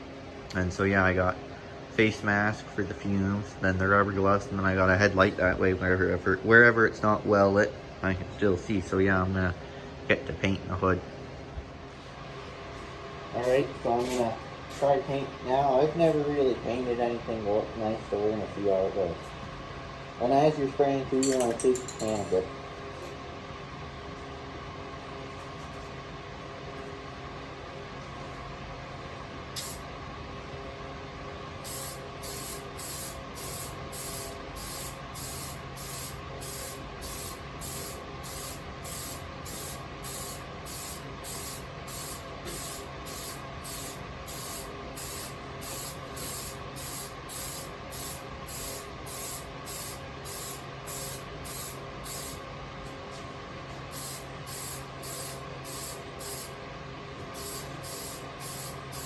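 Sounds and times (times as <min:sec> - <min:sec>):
steady background hum: 0:00.0 - 0:59.0
spray paint can spraying: 0:29.6 - 0:29.8, 0:31.6 - 0:52.4, 0:53.9 - 0:56.6, 0:57.3 - 0:59.0.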